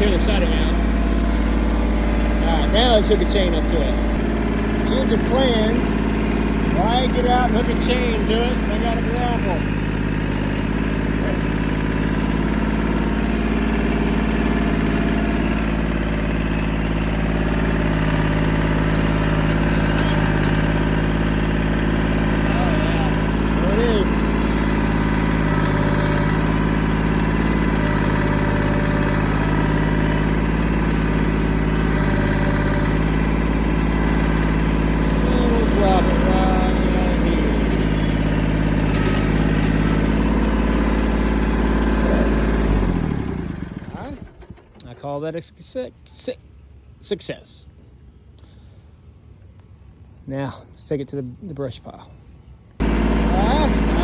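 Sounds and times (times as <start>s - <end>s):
tractor engine running: 0.0s - 47.0s, 51.9s - 54.0s.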